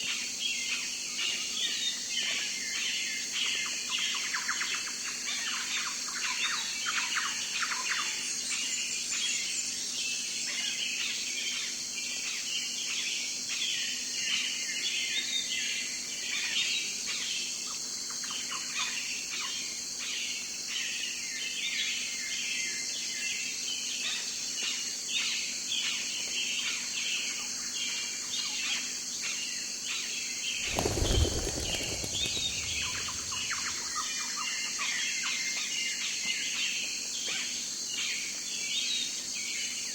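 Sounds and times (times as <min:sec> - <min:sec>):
steady high hiss: 0:30.6 - 0:33.8
small birds chirping: 0:30.6 - 0:33.9.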